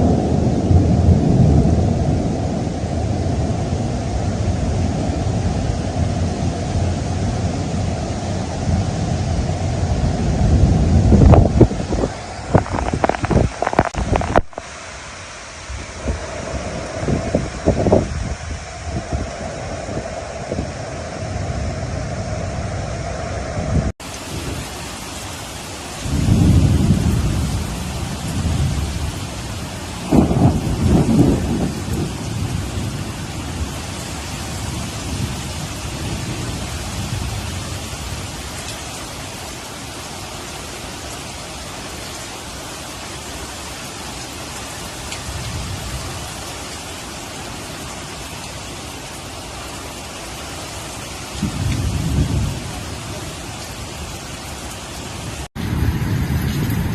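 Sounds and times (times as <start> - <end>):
thunder crack and rumble: 0.0 - 14.6, 26.0 - 38.3, 51.4 - 53.2, 55.3 - 56.9
heavy rain: 0.0 - 56.9.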